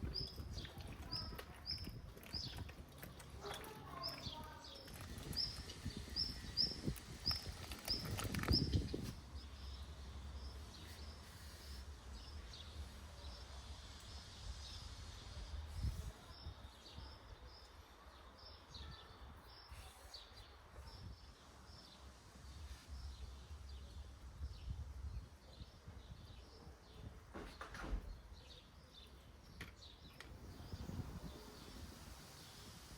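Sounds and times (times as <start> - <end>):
small bird chirping: 0.0 - 12.4
outdoor background noise: 0.0 - 32.9.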